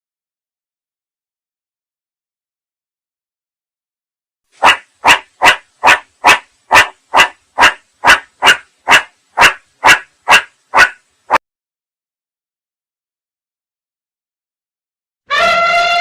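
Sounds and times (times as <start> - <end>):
dog barking: 4.6 - 11.4.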